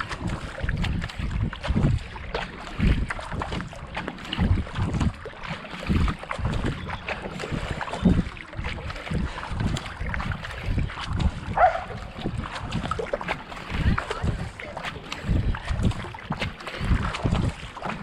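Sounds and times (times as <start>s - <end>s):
paddle splashing into water: 0.0s - 18.0s
wind buffeting microphone: 0.0s - 18.0s.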